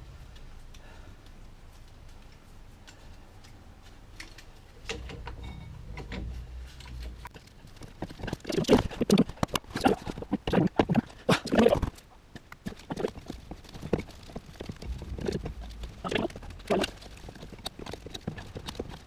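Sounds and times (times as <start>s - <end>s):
low rumble: 13.2s - 18.8s.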